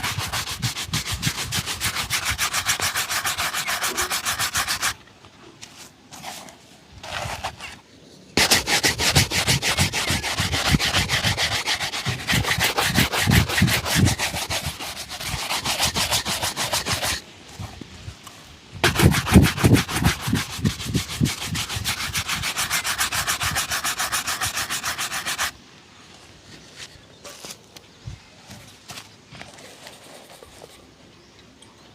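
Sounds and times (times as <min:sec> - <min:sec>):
shoe being buffed: 0:00.0 - 0:05.0, 0:08.4 - 0:17.2, 0:18.8 - 0:25.5.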